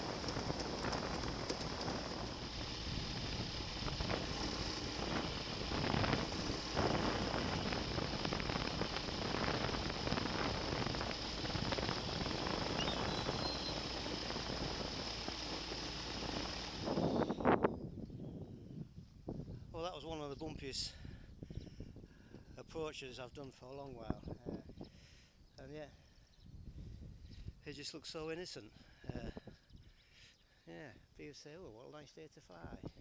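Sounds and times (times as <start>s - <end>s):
microlight engine running: 0.0s - 17.6s.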